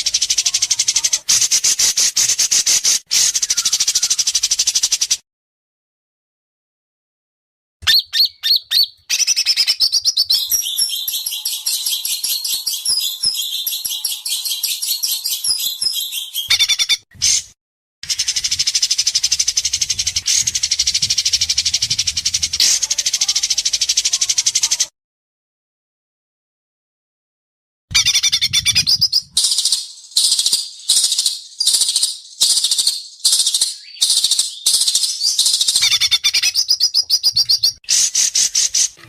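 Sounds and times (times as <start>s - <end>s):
songbird rapid trills: 0.0s - 5.1s, 10.4s - 16.8s, 29.3s - 36.5s.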